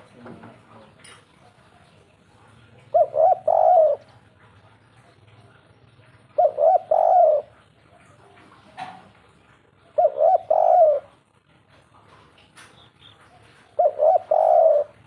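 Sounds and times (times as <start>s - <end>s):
dove cooing: 1.3s - 11.4s, 12.8s - 15.0s.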